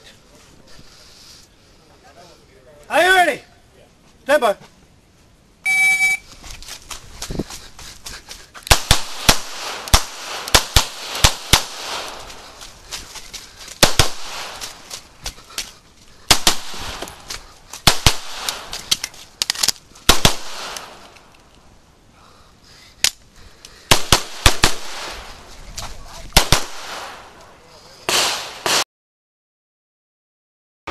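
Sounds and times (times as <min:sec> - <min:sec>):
shot timer beep: 0:05.6 - 0:06.2
pistol shots: 0:08.7 - 0:12.2, 0:13.8 - 0:14.7, 0:16.3 - 0:17.1, 0:20.1 - 0:21.0, 0:23.9 - 0:25.2, 0:26.4 - 0:27.2, 0:28.1 - 0:28.8.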